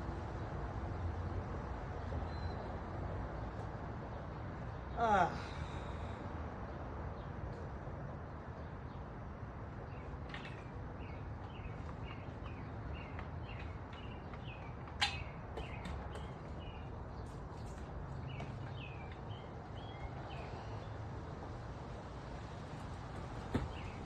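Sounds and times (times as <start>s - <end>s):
bird chirping: 2.2s - 2.7s, 9.8s - 20.9s.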